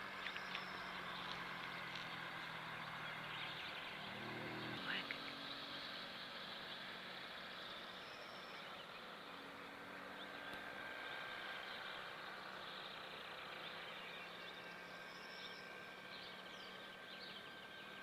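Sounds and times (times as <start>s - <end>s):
small birds chirping: 0.1s - 6.1s, 11.6s - 18.0s.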